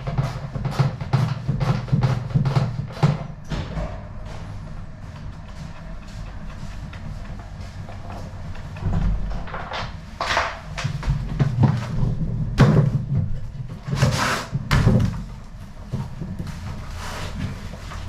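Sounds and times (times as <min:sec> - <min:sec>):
hard objects knocking and clattering: 0:00.0 - 0:04.1, 0:07.9 - 0:16.6
low hum: 0:01.7 - 0:18.0.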